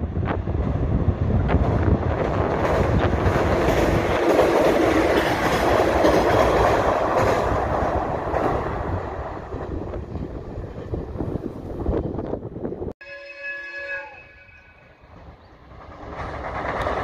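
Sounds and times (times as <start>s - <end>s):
train rumbling over steel bridge: 0.0s - 17.0s.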